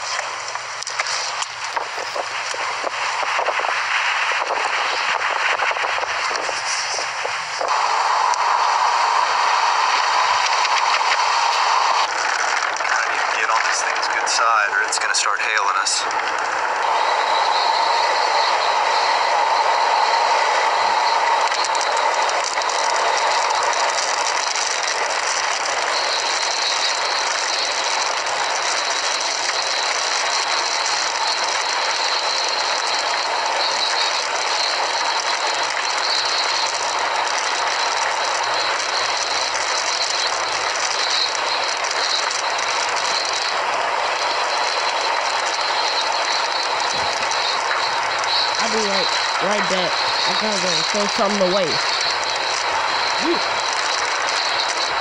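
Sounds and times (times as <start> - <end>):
hail drumming on a vehicle: 20.3 - 55.0.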